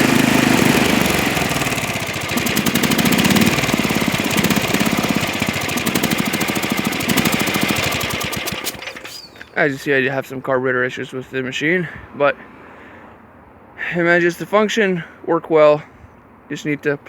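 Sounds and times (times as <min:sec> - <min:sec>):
snowblower engine running unevenly: 0:00.0 - 0:09.4.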